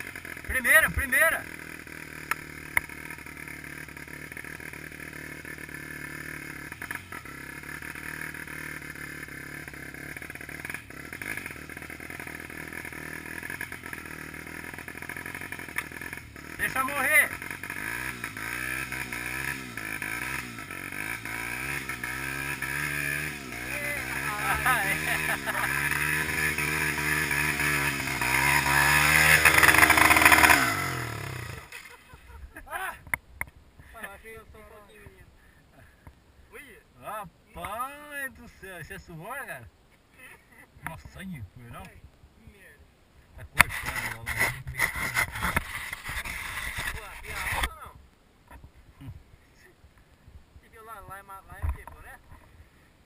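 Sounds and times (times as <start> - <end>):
motorcycle engine idling: 0.0 - 36.5.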